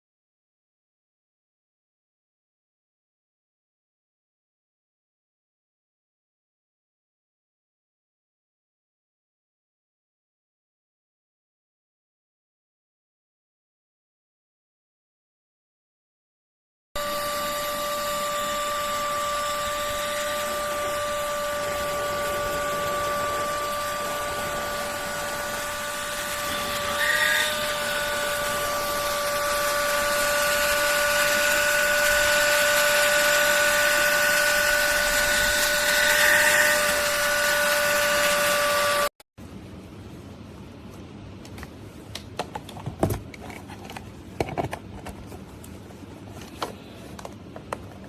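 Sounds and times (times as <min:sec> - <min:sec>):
handheld vacuum cleaner running: 0:17.0 - 0:39.1.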